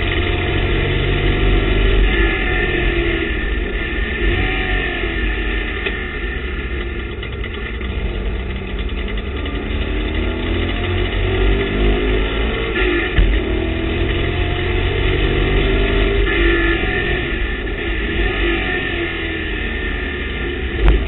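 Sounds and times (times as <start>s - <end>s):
race car engine revving: 0.0s - 21.0s
thump: 13.2s - 13.5s.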